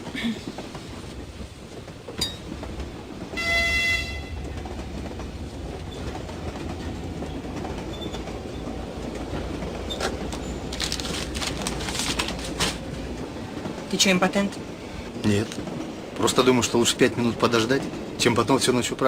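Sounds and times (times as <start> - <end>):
train rumbling on rails: 0.0 - 19.0
train horn toot: 3.4 - 4.5.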